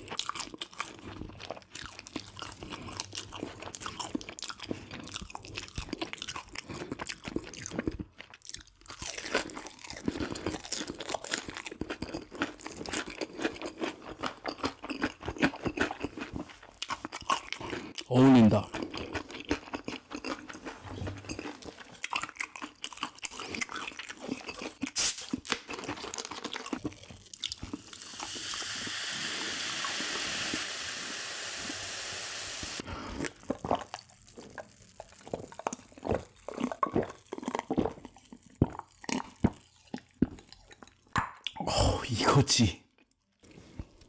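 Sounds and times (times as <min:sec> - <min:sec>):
crunching fried chicken: 0:00.0 - 0:28.3, 0:32.8 - 0:40.8
steady hiss: 0:28.1 - 0:32.8.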